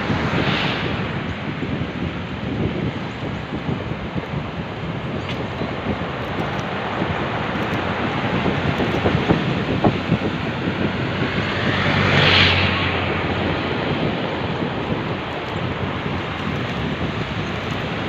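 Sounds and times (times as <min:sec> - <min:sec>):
whoosh: 0:00.0 - 0:01.7
wind rushing over microphone: 0:00.0 - 0:18.0.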